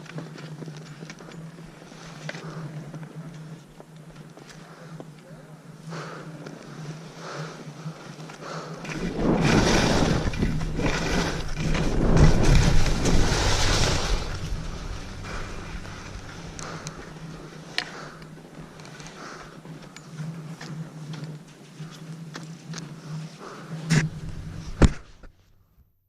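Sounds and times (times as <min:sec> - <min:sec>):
wind over the microphone: 0:08.8 - 0:18.8
skis sliding on snow: 0:08.8 - 0:21.8.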